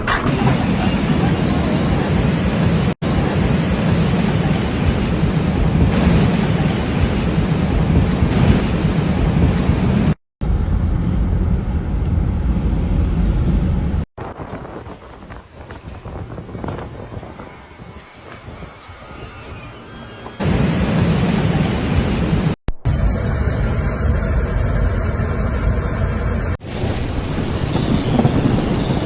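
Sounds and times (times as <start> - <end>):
strong wind on microphone: 0.0 - 24.6, 26.5 - 29.0.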